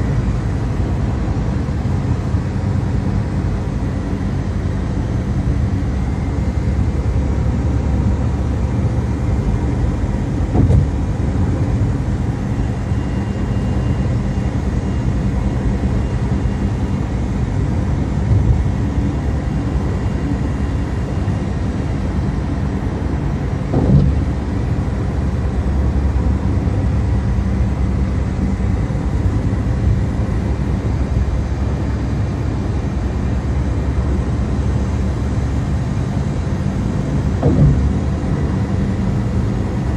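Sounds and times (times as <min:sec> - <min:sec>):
car engine and road noise: 0:00.0 - 0:39.9
brief thumps: 0:10.5 - 0:11.0, 0:23.7 - 0:24.3, 0:37.4 - 0:38.1.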